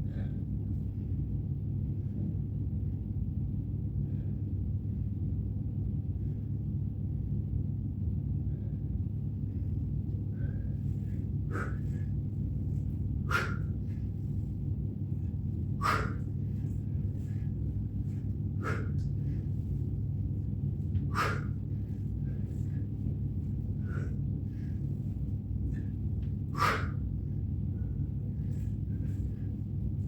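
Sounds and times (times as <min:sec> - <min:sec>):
low rumble: 0:00.0 - 0:30.0
man exhaling forcefully: 0:13.3 - 0:13.8, 0:15.8 - 0:16.3, 0:21.1 - 0:21.6, 0:26.6 - 0:27.0.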